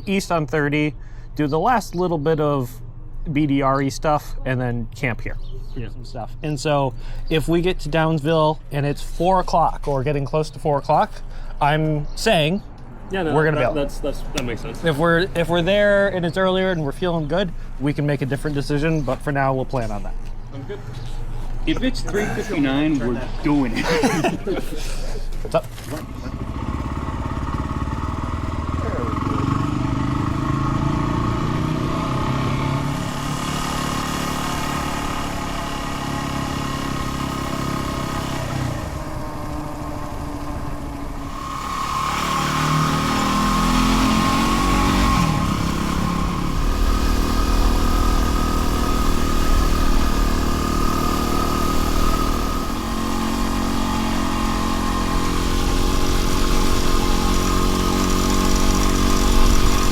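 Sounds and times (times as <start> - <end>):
motorcycle engine accelerating: 25.2 - 59.9.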